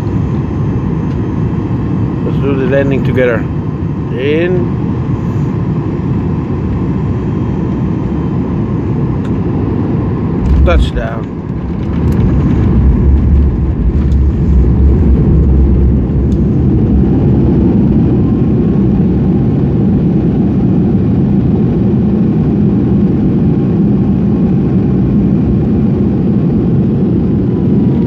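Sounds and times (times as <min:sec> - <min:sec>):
faint gliding whine: 0:00.0 - 0:20.4
jet engines and wheels rumbling: 0:00.0 - 0:28.0
very deep rumble: 0:00.0 - 0:28.0.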